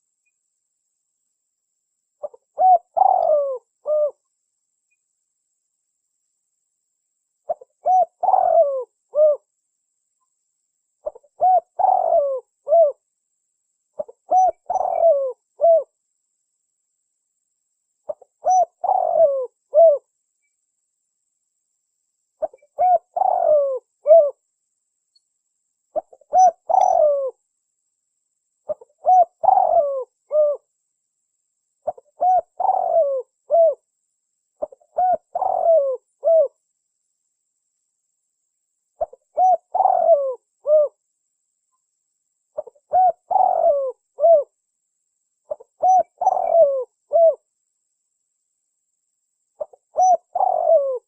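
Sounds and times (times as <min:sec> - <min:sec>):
dove cooing: 0:02.2 - 0:04.2, 0:07.5 - 0:09.5, 0:11.0 - 0:13.0, 0:14.0 - 0:15.9, 0:18.1 - 0:20.1, 0:22.4 - 0:24.4, 0:26.0 - 0:27.4, 0:28.7 - 0:30.7, 0:31.8 - 0:33.8, 0:34.6 - 0:36.6, 0:39.0 - 0:41.0, 0:42.6 - 0:44.6, 0:45.5 - 0:47.4, 0:49.6 - 0:51.0.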